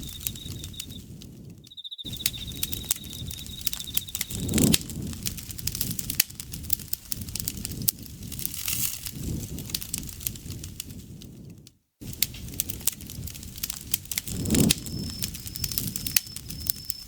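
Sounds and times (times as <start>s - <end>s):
insect trilling: 0.0s - 1.0s, 1.7s - 4.7s, 14.3s - 17.0s
campfire crackling and popping: 0.0s - 17.0s.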